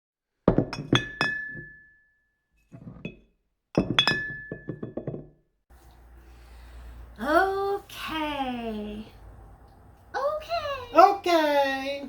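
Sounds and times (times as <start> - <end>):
glass clinking: 0.5 - 2.0, 2.7 - 5.3.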